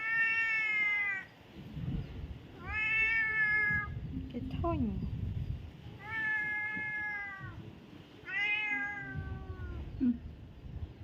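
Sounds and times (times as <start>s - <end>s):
cat meowing: 0.0s - 1.3s, 2.6s - 4.0s, 6.0s - 7.6s, 8.2s - 9.9s.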